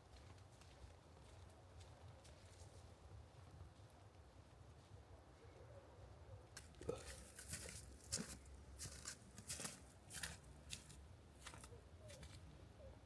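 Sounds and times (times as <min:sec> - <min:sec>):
footsteps crunching in slushy snow: 0:07.1 - 0:12.4.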